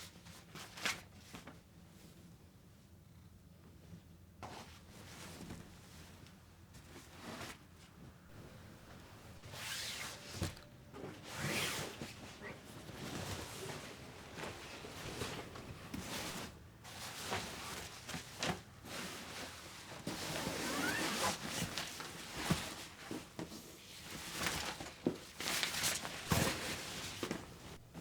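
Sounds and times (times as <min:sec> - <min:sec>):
rustling and raspy scraping: 0:08.3 - 0:21.7.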